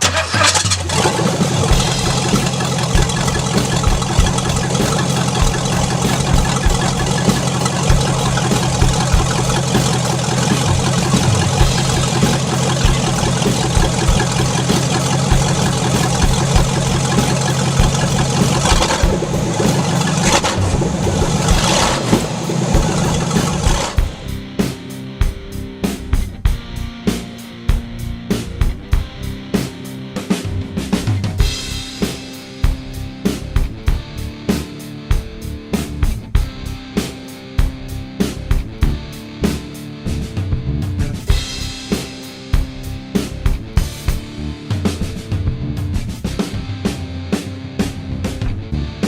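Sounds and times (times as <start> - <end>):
car engine idling and revving: 0.0 - 24.8.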